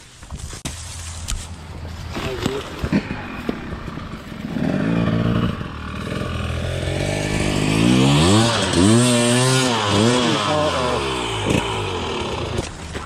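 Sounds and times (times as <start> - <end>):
dirt bike engine revving: 2.6 - 13.0.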